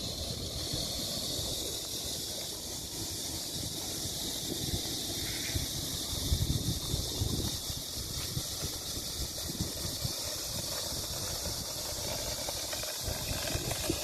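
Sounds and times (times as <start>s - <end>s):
steady hiss: 0.0s - 14.0s
wind buffeting microphone: 5.6s - 14.0s.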